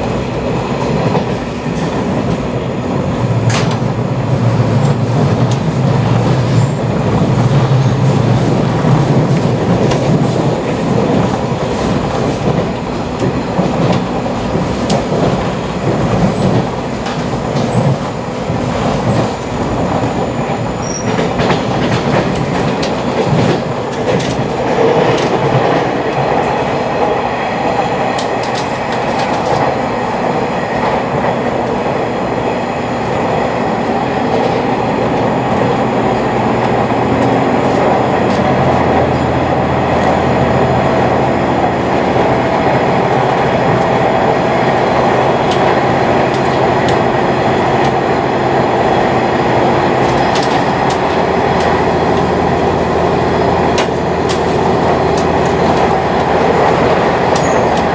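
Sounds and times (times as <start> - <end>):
rail-joint clacks: 0.0 - 57.9
train cabin rumble and hum: 0.0 - 57.9.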